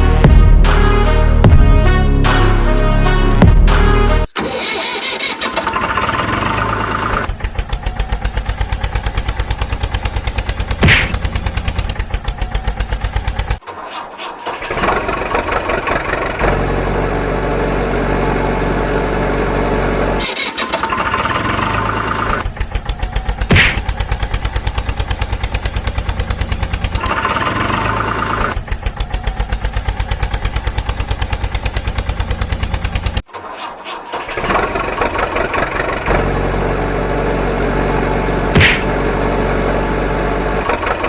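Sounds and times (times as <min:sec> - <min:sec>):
engine running hum: 0:00.0 - 0:41.0
vehicle engine chugging: 0:00.0 - 0:41.0.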